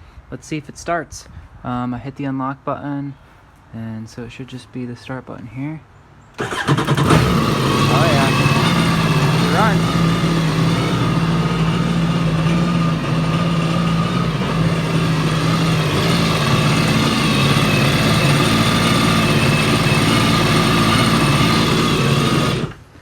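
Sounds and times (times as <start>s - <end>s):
engine idling: 6.4s - 23.0s.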